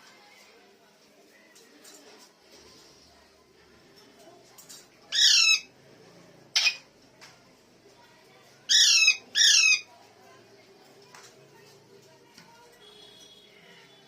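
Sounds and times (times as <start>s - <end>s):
parrot shrieking: 5.1s - 5.7s, 6.6s - 6.8s, 8.7s - 9.9s
parrot squawking: 5.1s - 5.7s, 6.5s - 6.8s, 8.7s - 9.9s.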